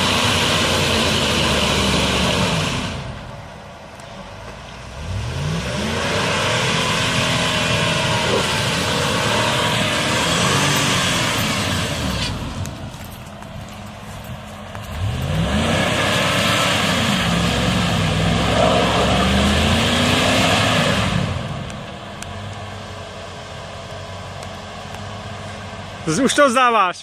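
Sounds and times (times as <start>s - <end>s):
off-road vehicle engine revving: 0.0s - 3.3s, 4.7s - 26.8s
engine idling: 21.1s - 27.0s.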